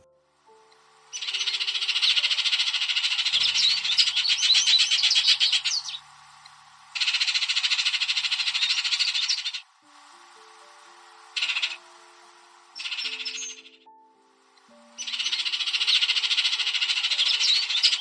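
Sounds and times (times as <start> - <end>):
small bird trilling: 1.1 - 6.1, 6.9 - 9.7, 11.4 - 12.0, 12.8 - 13.9, 14.9 - 18.0.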